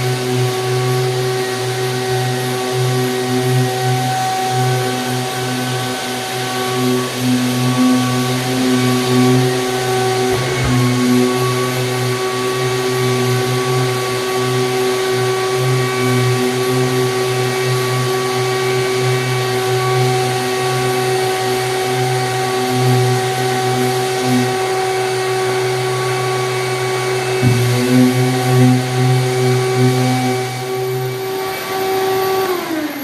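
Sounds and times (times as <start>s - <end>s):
drywall sander whining: 0.0s - 33.0s
dust extraction vacuum: 0.0s - 33.0s.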